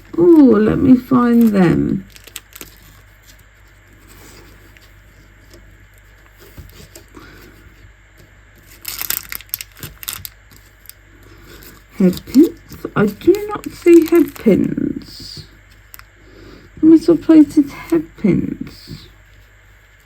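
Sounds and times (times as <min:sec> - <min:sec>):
plastic packets rustling: 0:00.0 - 0:07.2, 0:08.6 - 0:14.8.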